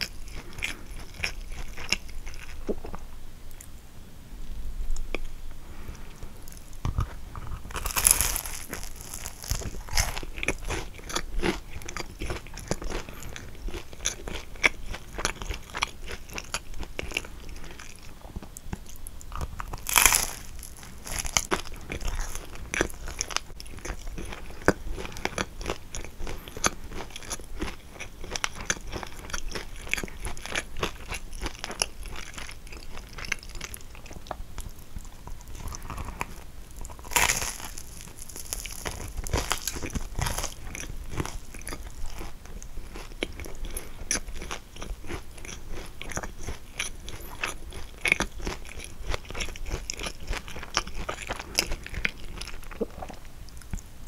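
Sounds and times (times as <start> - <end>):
crunchy pastry chewing: 0.0 - 3.7, 5.0 - 53.9.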